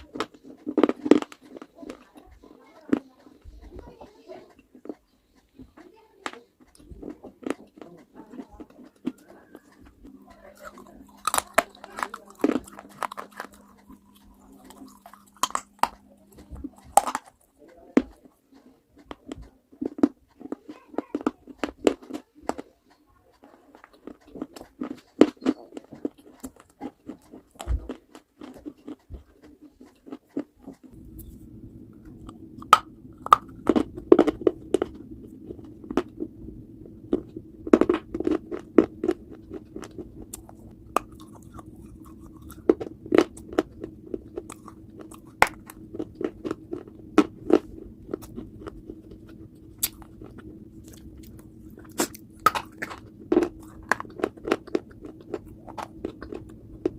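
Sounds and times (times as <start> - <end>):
crunchy chewing: 0.0 - 56.9
low hum: 8.1 - 18.2, 30.8 - 56.9.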